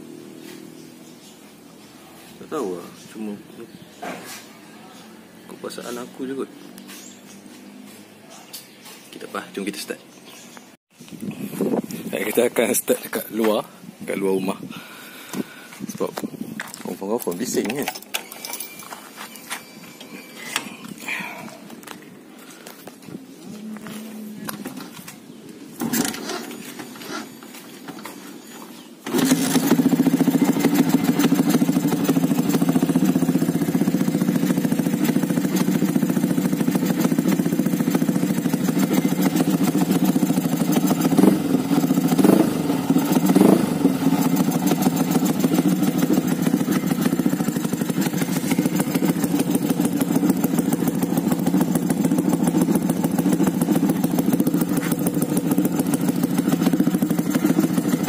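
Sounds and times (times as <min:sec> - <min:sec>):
engine throttle blips: 0:29.0 - 0:58.0
motorcycle engine idling: 0:29.1 - 0:58.0.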